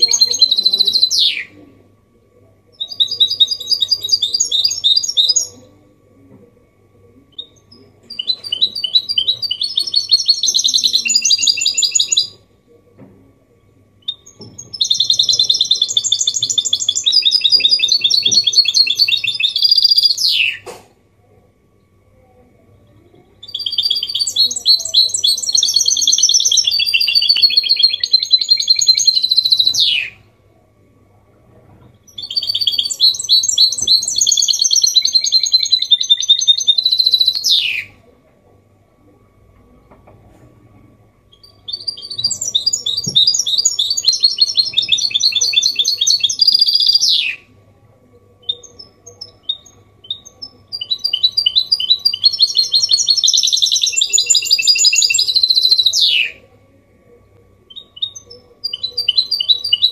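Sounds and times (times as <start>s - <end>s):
bird chirps: 0.0s - 1.6s, 7.3s - 12.4s, 14.0s - 20.8s, 22.9s - 30.2s, 31.8s - 38.0s, 41.3s - 47.5s, 48.4s - 56.4s, 57.7s - 59.9s
bird singing twittering trills: 0.0s - 1.6s, 2.7s - 5.7s, 7.3s - 12.4s, 13.6s - 20.7s, 22.8s - 30.2s, 31.8s - 38.0s, 41.3s - 47.5s, 48.4s - 56.4s, 57.7s - 59.9s.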